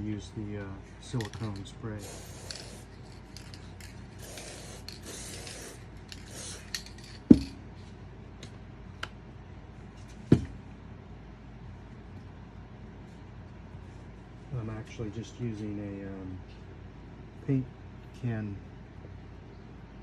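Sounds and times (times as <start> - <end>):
aerosol spray hissing: 2.0 - 2.9, 4.2 - 6.8
sharp knocks: 10.3 - 10.6.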